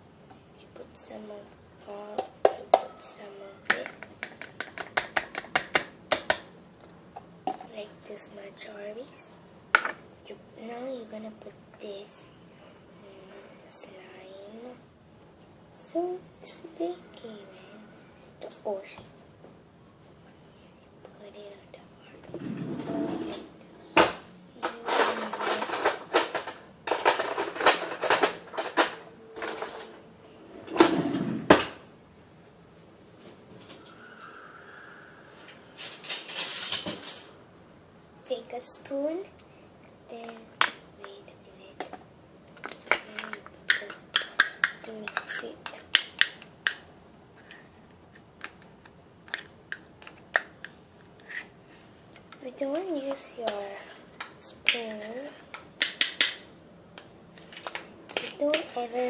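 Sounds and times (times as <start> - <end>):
objects being handled: 22.2 - 31.7.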